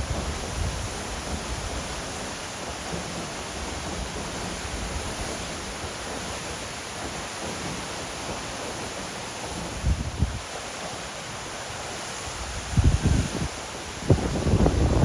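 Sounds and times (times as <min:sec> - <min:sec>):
wind buffeting microphone: 0:00.0 - 0:02.0, 0:09.7 - 0:10.5, 0:12.4 - 0:15.0
waterfall rushing: 0:00.0 - 0:15.0.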